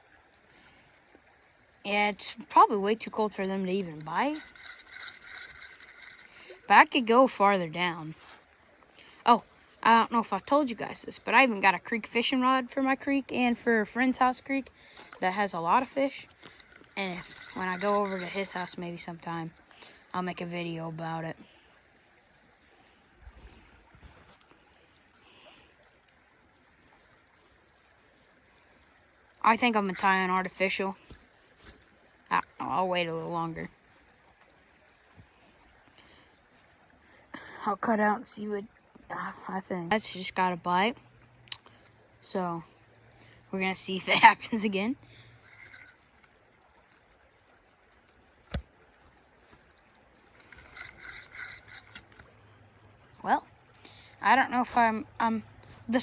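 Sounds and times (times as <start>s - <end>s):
rubbing and scraping handling: 3.0s - 7.4s, 13.5s - 19.1s, 45.4s - 46.0s, 50.4s - 52.2s.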